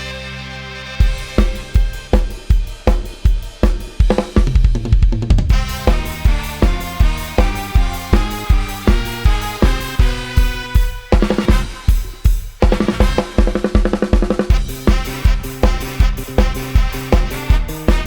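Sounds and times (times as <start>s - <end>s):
programmed band music: 0.0s - 18.0s
drum fill: 1.0s - 18.0s.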